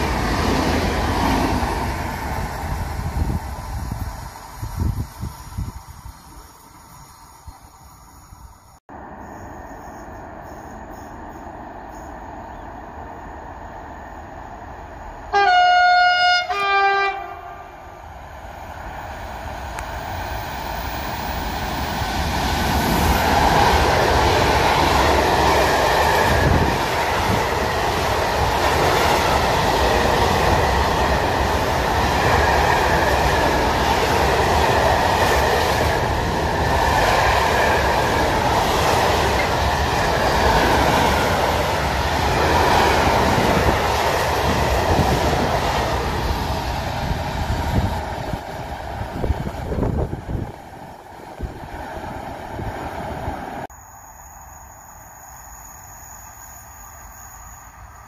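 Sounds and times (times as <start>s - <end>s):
train wheels rumbling on rails: 0.0s - 15.7s, 17.9s - 53.7s
train horn blasts: 15.3s - 17.9s.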